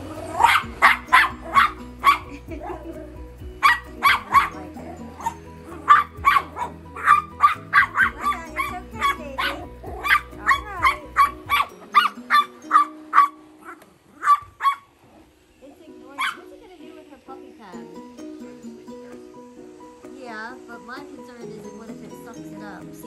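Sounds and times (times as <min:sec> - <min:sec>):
dog whining yips: 0:00.2 - 0:02.3, 0:03.6 - 0:04.6, 0:05.2 - 0:14.9
small dog yapping: 0:00.3 - 0:02.8, 0:03.6 - 0:04.6, 0:05.2 - 0:15.3, 0:16.2 - 0:16.4.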